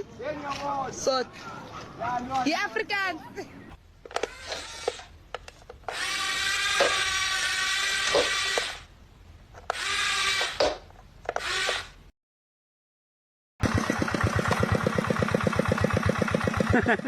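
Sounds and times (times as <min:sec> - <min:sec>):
small power-tool motor whining: 0:04.2 - 0:05.1, 0:05.9 - 0:08.9, 0:09.7 - 0:12.0.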